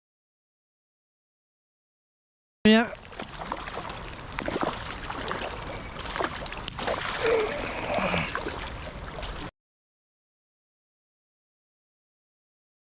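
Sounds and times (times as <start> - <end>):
water trickling and splashing: 2.7 - 9.5
small irregular clicks: 3.1 - 9.5.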